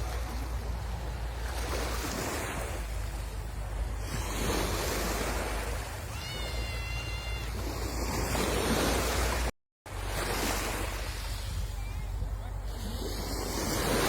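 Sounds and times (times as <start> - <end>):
sea waves breaking on shore: 0.0 - 14.0
wind rumbling on microphone: 0.0 - 14.0.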